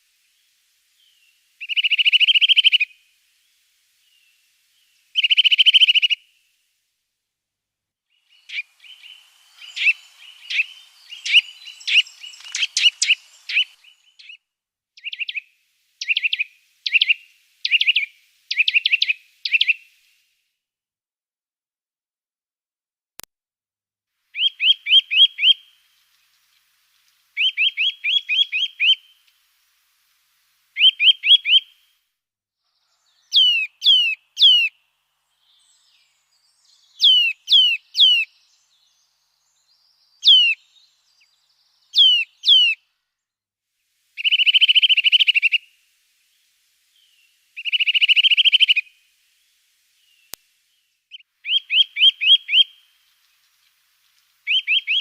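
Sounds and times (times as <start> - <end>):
songbird whistling: 0.4 - 6.4, 8.1 - 14.4, 15.0 - 19.9, 24.3 - 25.8, 27.4 - 29.2, 30.8 - 31.8, 32.9 - 42.8, 44.2 - 45.8, 46.9 - 53.2, 54.4 - 55.0
bird trills: 1.0 - 3.0, 4.9 - 6.3, 8.2 - 14.4, 15.0 - 19.8, 24.4 - 25.8, 27.4 - 29.2, 35.5 - 38.7, 39.8 - 42.8, 44.2 - 45.8, 47.0 - 49.1, 51.1 - 55.0.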